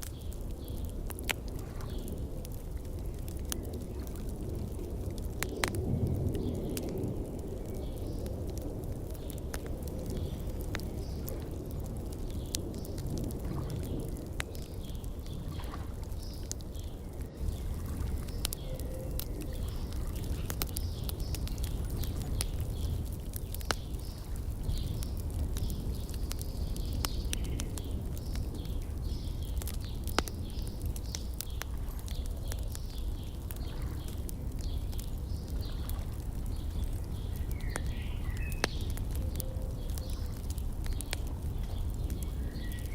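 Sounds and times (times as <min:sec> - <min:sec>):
small birds chirping: 0:00.0 - 0:06.9, 0:07.5 - 0:42.9
wood fire crackling and popping: 0:00.0 - 0:42.9.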